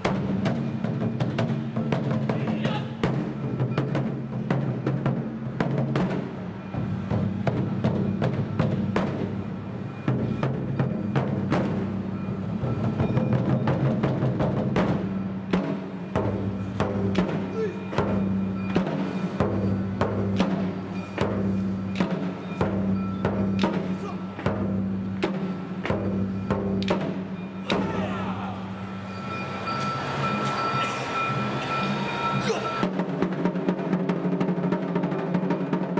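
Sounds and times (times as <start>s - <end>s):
taiko drums in fast rhythm: 0.0s - 29.9s, 30.6s - 35.9s
held instrument notes: 27.4s - 32.9s.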